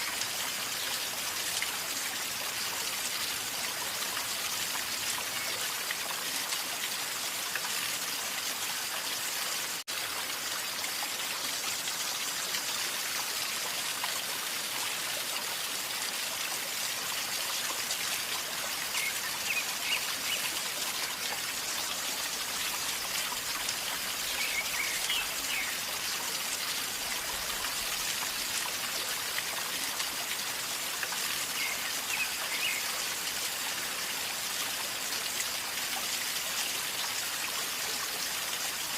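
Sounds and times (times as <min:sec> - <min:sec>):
river water gurgling: 0:00.0 - 0:38.9.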